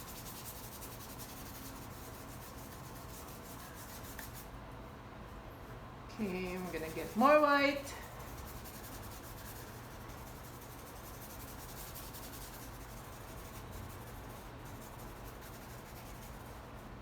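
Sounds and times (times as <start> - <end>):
paintbrush brushing on canvas: 6.2 - 16.7.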